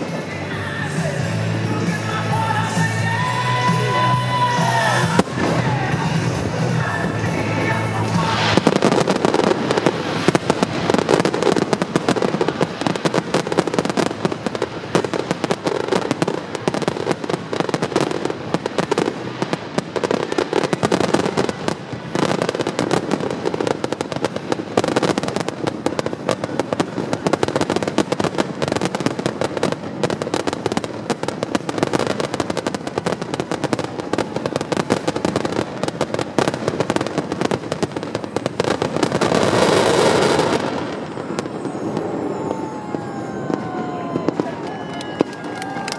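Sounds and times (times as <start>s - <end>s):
music: 0.0s - 9.4s
fireworks bangs and crackles: 0.0s - 45.9s.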